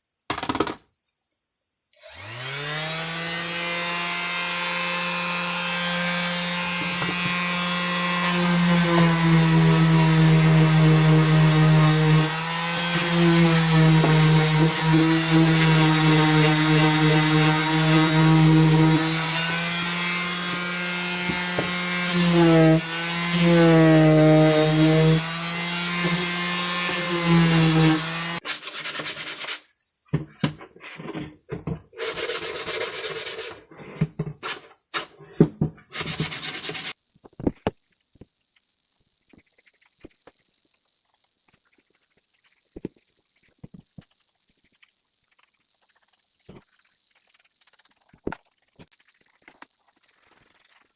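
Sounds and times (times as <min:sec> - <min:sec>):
power tool motor cutting wood: 0:02.0 - 0:29.6, 0:30.4 - 0:37.0.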